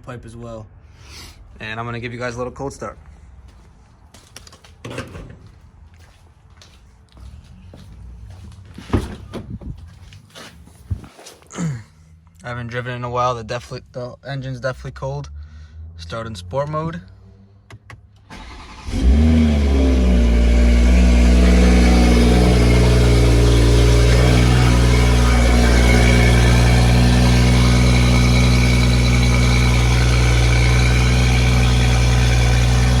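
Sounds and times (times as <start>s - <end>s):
car engine starting and idling: 18.2s - 33.0s.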